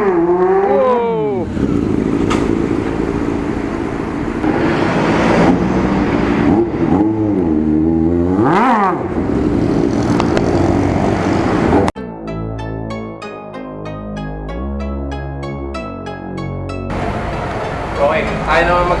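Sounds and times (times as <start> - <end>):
engine revving: 0.0 - 12.0
motorcycle engine running: 1.3 - 4.9.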